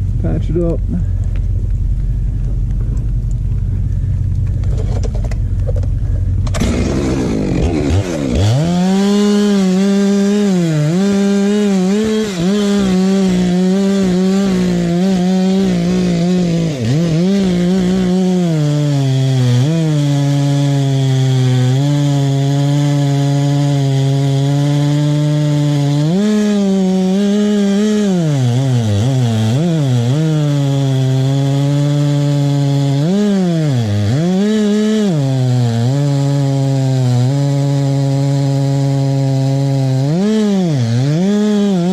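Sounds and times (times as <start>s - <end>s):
chainsaw cutting wood: 0.0s - 41.9s.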